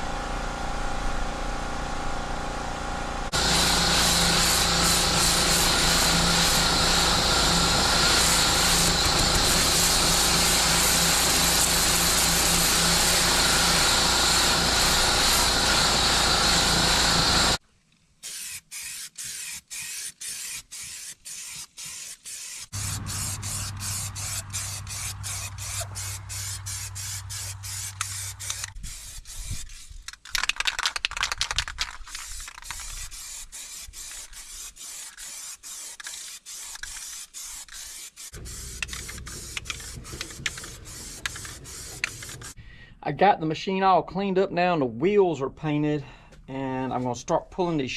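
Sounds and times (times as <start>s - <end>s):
engine drone: 0.0s - 17.6s, 22.8s - 28.7s, 38.4s - 42.6s
pressure washer spraying hiss: 3.4s - 17.6s, 18.3s - 29.1s, 33.1s - 42.6s
mechanical clatter: 37.7s - 42.6s.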